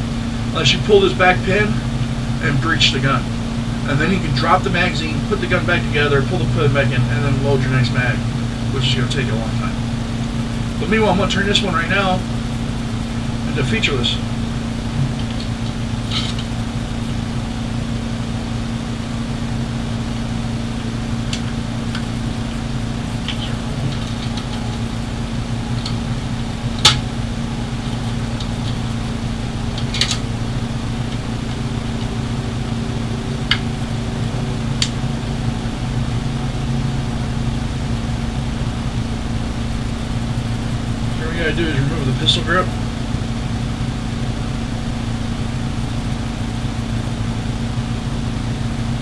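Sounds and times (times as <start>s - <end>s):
low machine hum: 0.0s - 49.0s
metal rifle parts clicking: 29.8s - 30.2s.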